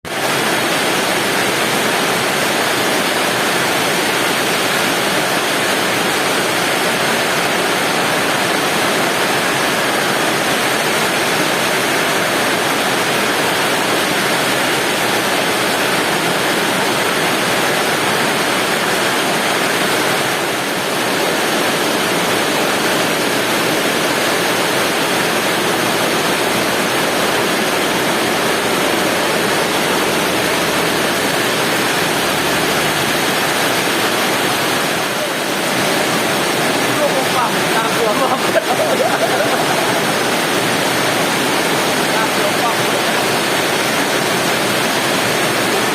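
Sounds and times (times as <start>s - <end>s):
heavy rain pouring: 0.0s - 45.9s.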